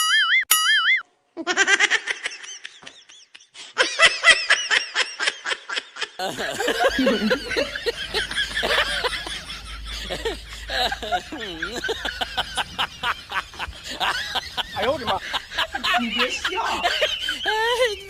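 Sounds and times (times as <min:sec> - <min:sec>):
people laughing: 0:01.4 - 0:18.0
people talking: 0:06.2 - 0:18.0
steady background noise: 0:06.2 - 0:18.0.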